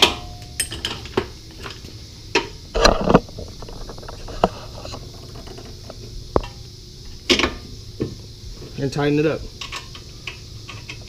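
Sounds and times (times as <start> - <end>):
metal parts and tools clanking: 0.0 - 1.7.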